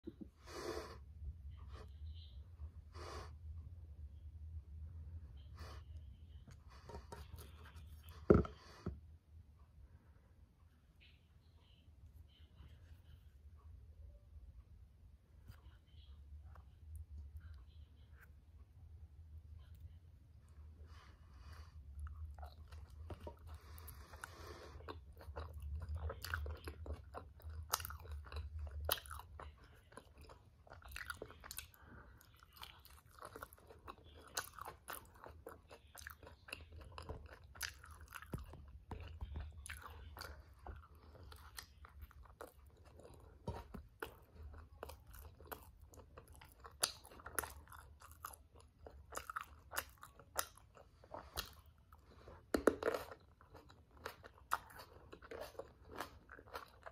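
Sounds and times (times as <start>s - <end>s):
crunchy chewing of a wrap: 21.7s - 56.9s.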